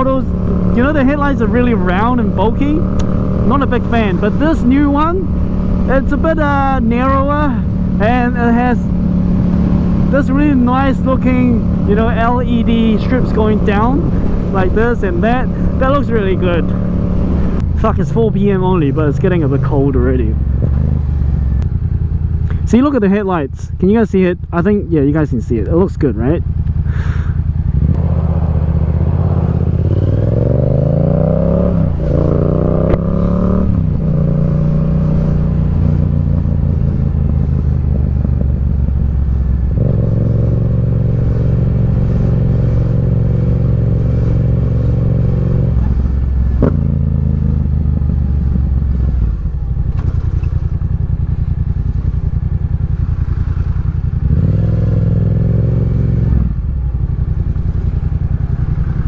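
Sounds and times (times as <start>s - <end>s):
wind rush: 0.0s - 17.8s, 26.8s - 50.8s
motorcycle engine accelerating: 0.0s - 59.0s.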